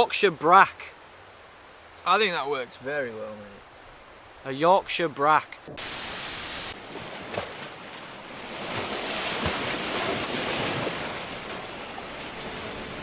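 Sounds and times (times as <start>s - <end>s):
flat hiss: 5.8s - 6.8s
sea surf washing on shore: 5.8s - 13.0s.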